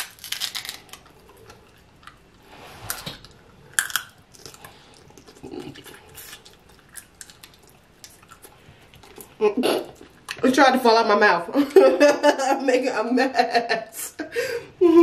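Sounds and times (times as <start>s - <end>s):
wet chewing and lip-smacking: 3.2s - 10.4s.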